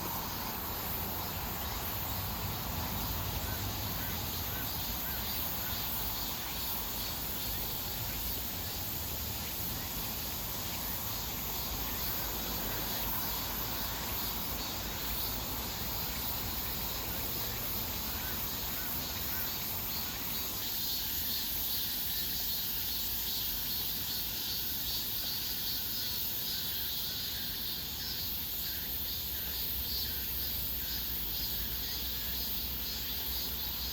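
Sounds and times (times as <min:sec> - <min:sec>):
pulsing insect chirr: 0:00.0 - 0:33.9.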